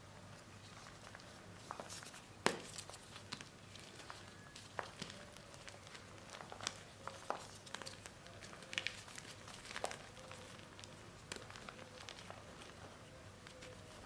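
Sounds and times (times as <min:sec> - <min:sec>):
paste crumbled by hand: 0:02.4 - 0:12.5.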